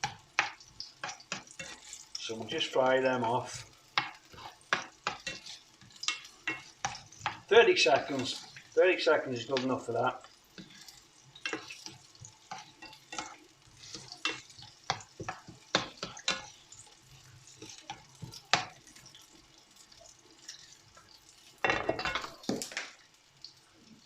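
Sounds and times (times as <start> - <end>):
utensil scraping pan: 0.0 - 8.7, 9.4 - 16.6
loud rush of frying noise: 0.0 - 24.0
onions sizzling in oil: 0.0 - 24.0.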